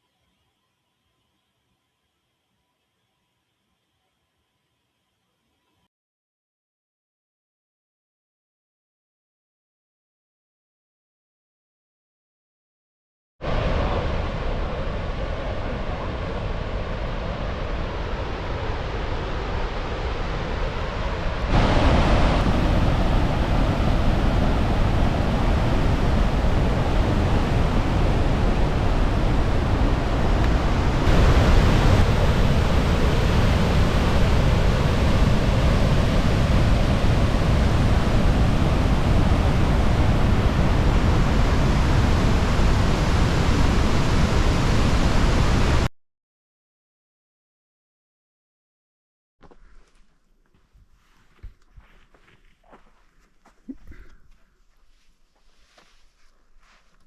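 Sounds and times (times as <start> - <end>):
large waterfall rushing: 21.4 - 45.8.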